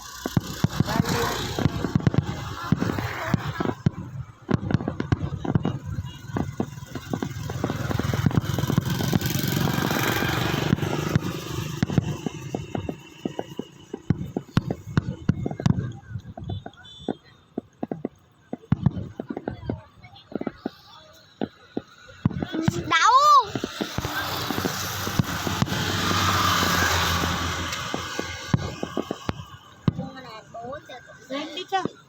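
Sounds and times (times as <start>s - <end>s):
continuous rumble: 0.0s - 32.0s
fireworks cracking and banging: 0.0s - 32.0s.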